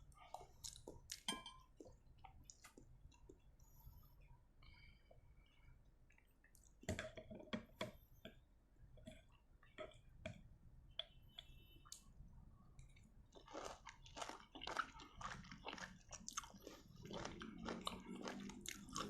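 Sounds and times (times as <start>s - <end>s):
close chewing: 0.1s - 3.4s, 13.3s - 19.0s.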